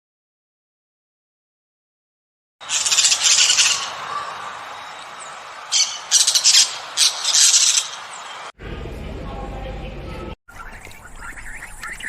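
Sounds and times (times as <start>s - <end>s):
bird calling loudly: 2.6s - 8.5s, 10.5s - 12.0s.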